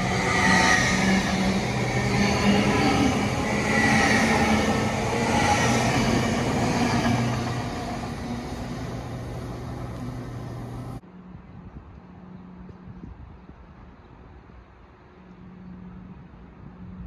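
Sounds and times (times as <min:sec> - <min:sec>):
train passing with wheel noise: 0:00.0 - 0:11.4.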